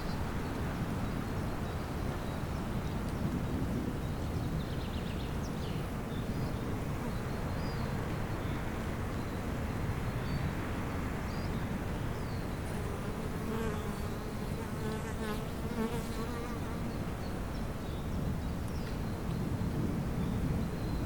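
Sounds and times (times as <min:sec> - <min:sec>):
bee buzzing: 0:12.7 - 0:17.0.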